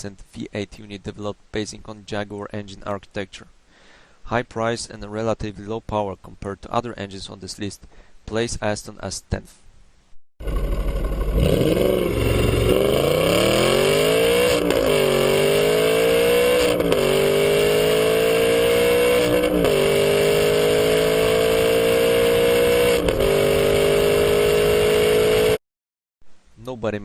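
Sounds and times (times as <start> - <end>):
car engine accelerating through gears: 10.4 - 25.6.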